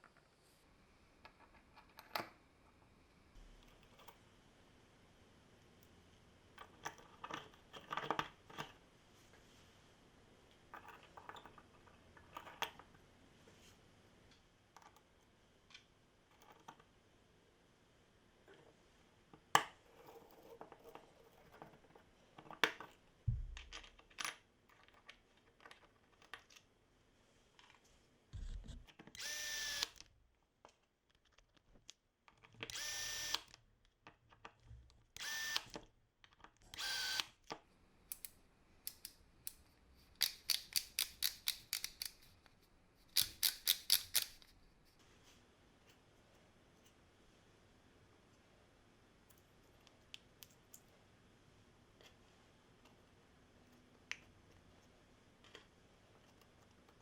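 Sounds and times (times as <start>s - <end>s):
small parts clicking and knocking: 6.6s - 8.8s, 28.4s - 44.6s
cordless drill motor running: 29.2s - 30.0s, 32.7s - 33.5s, 35.2s - 35.7s, 36.7s - 37.3s.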